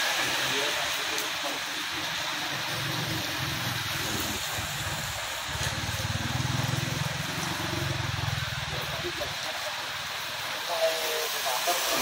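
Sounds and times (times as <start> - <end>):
rain hiss: 0.0 - 12.0
vehicle engine running: 2.4 - 10.4.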